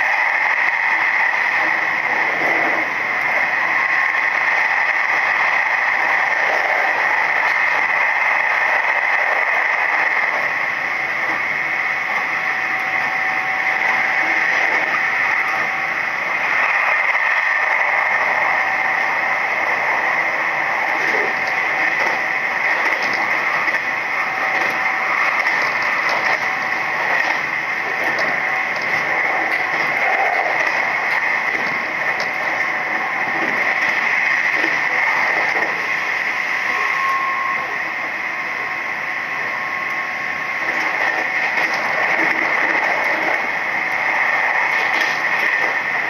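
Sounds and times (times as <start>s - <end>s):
electric train running: 0.0s - 46.0s
faint hum: 0.0s - 46.0s
steady hiss: 0.0s - 46.0s.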